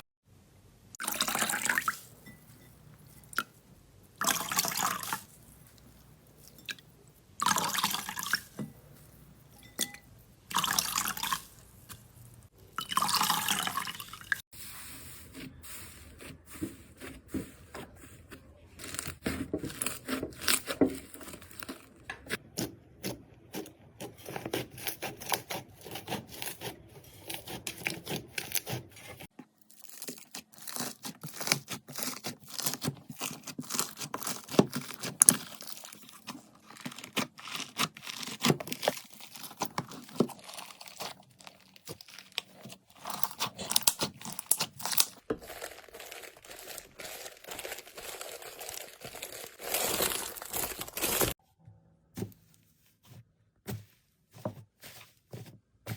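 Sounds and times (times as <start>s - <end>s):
slime crackling and popping: 29.7s - 51.4s.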